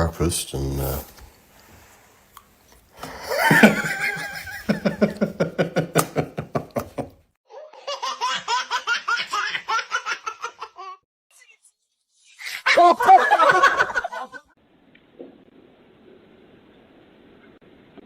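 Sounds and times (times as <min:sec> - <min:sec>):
people laughing: 0:03.0 - 0:07.1, 0:12.6 - 0:14.5.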